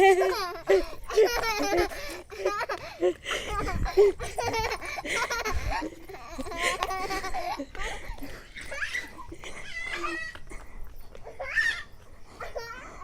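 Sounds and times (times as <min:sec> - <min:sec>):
young child laughing: 0:00.0 - 0:10.4.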